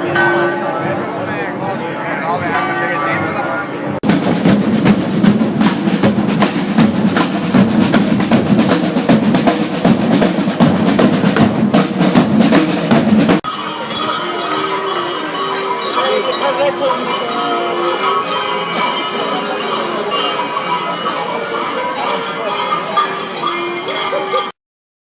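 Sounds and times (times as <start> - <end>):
steady tones: 0.0 - 24.5
dense drumming: 4.0 - 13.6.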